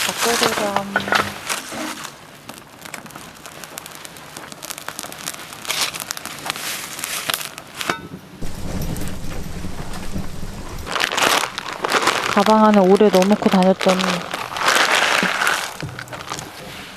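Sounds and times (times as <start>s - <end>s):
crackling and crinkling: 0.0s - 16.9s
low rushing noise: 8.4s - 12.4s.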